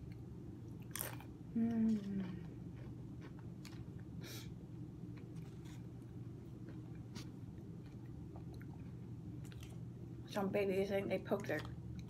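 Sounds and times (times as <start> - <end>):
steady low hum: 0.0 - 12.0
faint chewing: 5.1 - 9.8.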